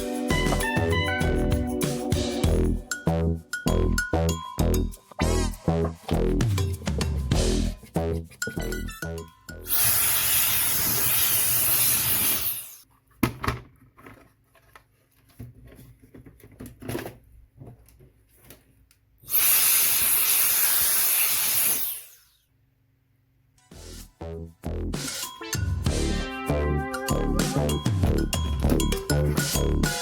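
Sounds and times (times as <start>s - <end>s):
pressurised spray hissing: 9.7s - 12.8s, 19.3s - 22.2s.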